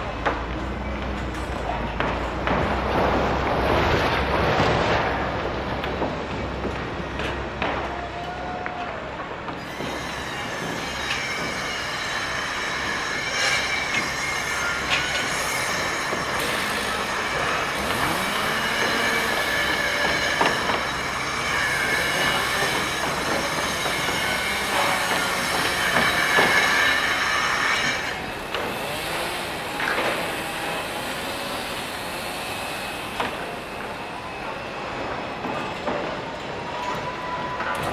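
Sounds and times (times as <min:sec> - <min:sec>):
construction machinery rumble: 0:00.0 - 0:37.9
metallic squealing tones: 0:09.6 - 0:35.8.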